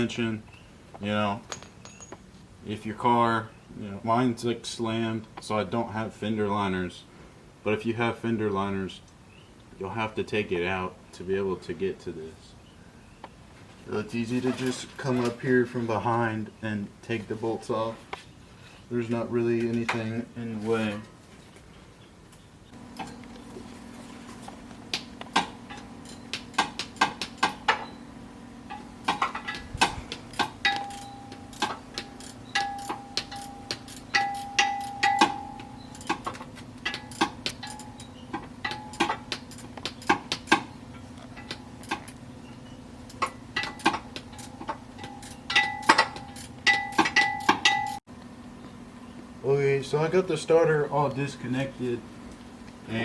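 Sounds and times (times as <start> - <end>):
steady low hum: 15.8 - 53.0
ratchet metallic clicks and clinks: 30.3 - 40.6, 43.1 - 48.0.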